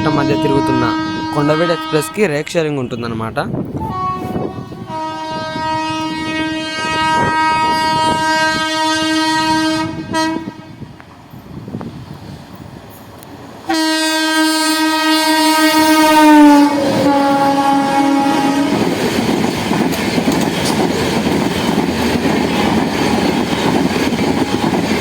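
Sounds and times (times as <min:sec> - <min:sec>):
locomotive horn blasts: 0:00.0 - 0:02.4, 0:03.8 - 0:10.9, 0:13.7 - 0:18.8
train wheels clicking over rail joints: 0:18.7 - 0:25.0.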